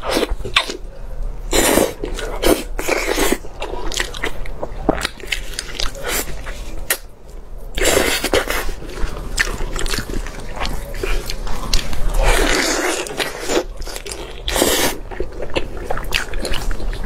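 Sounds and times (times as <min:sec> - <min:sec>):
chewing and biting: 0:07.8 - 0:17.0.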